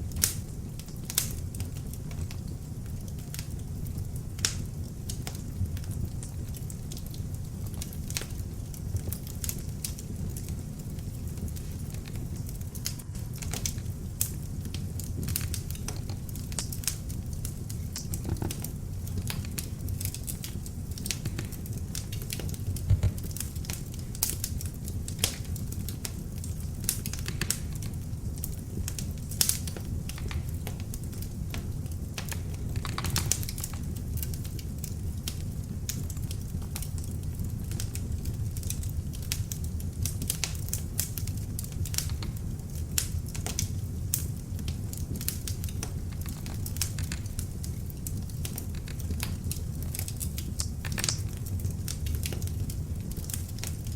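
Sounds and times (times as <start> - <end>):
log fire crackling and popping: 0.0 - 53.9
low rumble of burning: 0.0 - 53.9.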